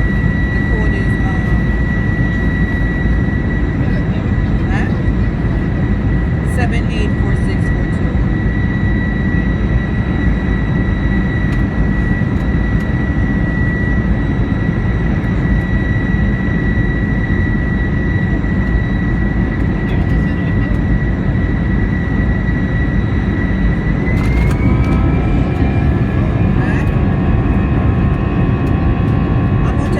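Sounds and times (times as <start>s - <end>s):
jet engines rumbling: 0.0s - 29.9s
high whine rising in pitch: 23.7s - 29.0s.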